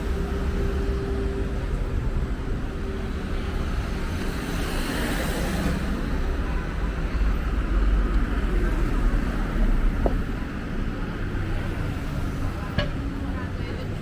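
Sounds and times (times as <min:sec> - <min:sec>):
low traffic rumble: 0:00.0 - 0:14.0
vehicle engine humming: 0:08.4 - 0:14.0.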